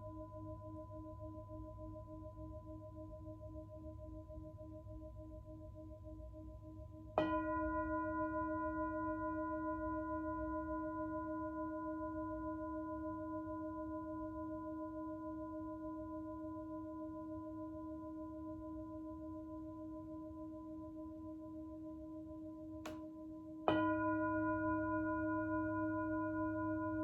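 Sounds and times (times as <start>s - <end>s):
singing bowl ringing: 23.7s - 27.0s.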